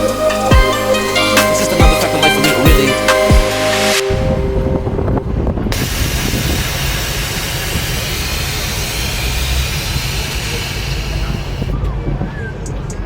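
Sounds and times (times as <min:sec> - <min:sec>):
loud steady hiss: 0:05.8 - 0:11.7.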